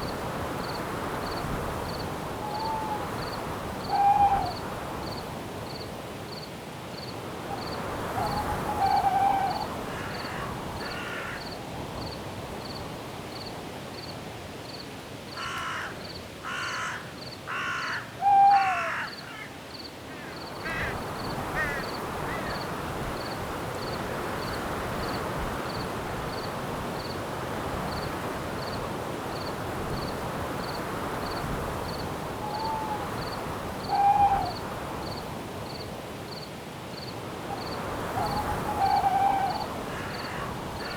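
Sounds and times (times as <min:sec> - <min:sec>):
crickets chirping: 0:00.0 - 0:40.9
wind in branches: 0:00.0 - 0:40.9
owl hoots: 0:02.4 - 0:03.1, 0:03.8 - 0:04.6, 0:08.2 - 0:09.8, 0:18.2 - 0:19.1, 0:32.4 - 0:34.6, 0:37.6 - 0:40.9.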